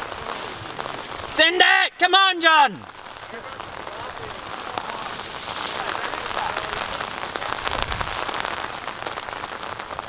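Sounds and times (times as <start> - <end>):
rain drops ticking: 0.0 - 10.0
wind rumble on microphone: 7.6 - 8.4.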